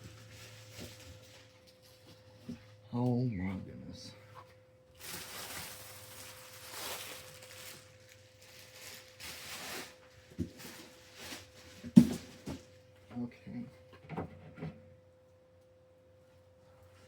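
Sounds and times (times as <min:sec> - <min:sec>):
packaging tearing and rustling: 0:05.0 - 0:12.3.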